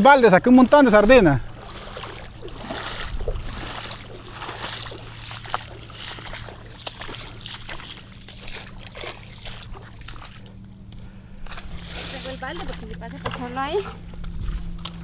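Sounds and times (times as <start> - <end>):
small splashes: 0.0 - 15.0
steady low hum: 0.0 - 15.0
water dripping and sloshing: 0.0 - 15.0.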